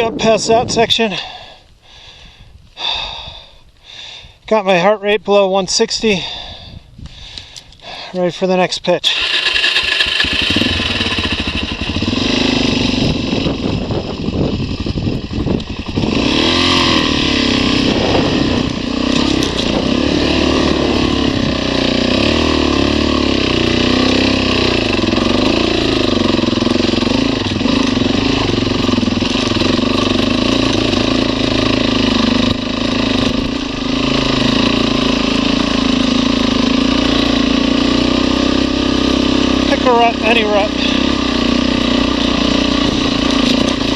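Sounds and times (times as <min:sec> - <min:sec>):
motorcycle engine revving: 0:09.1 - 0:43.9.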